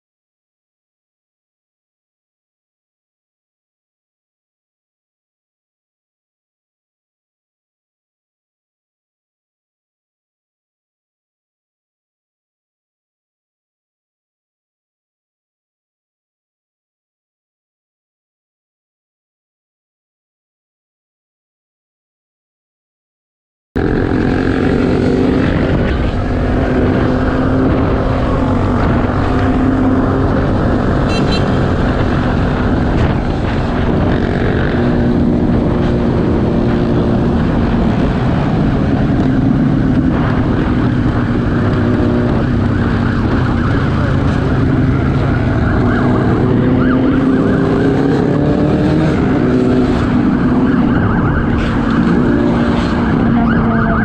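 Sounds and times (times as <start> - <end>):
vehicle engine and road noise: 23.8 - 54.0.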